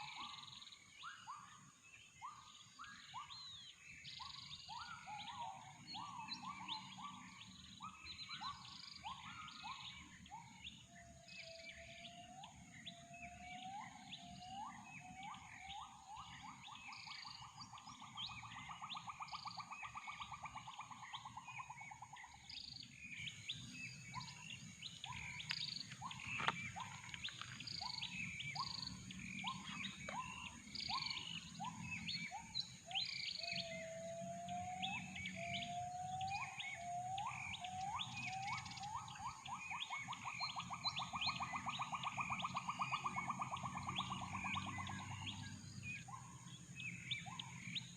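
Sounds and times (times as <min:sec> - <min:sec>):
birds chirping: 0:00.0 - 0:47.9
gibbons whooping calls: 0:24.1 - 0:46.4.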